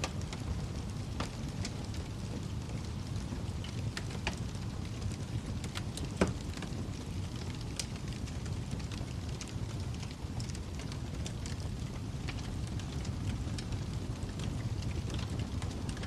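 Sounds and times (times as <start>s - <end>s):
fire crackles and pops: 0.0s - 16.0s
fire flames rumbling: 0.0s - 16.0s.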